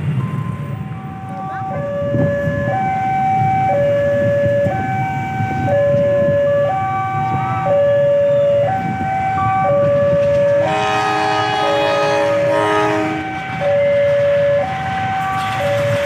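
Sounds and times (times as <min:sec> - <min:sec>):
road traffic rumble: 0:00.0 - 0:16.0
level crossing two-tone alarm: 0:00.2 - 0:16.0
train horn: 0:10.6 - 0:13.5.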